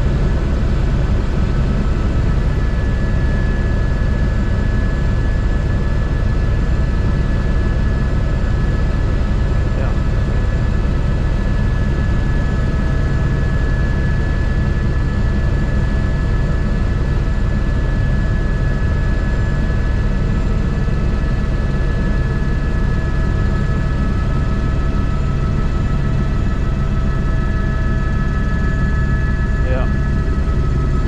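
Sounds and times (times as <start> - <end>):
turbine engine whine: 0.0 - 31.0
helicopter rotor beating: 19.6 - 31.0.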